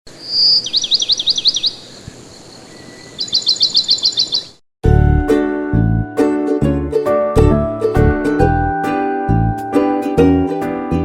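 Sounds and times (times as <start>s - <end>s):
bird chirping: 0.1s - 4.6s
plucked-string children's tune: 4.8s - 11.0s.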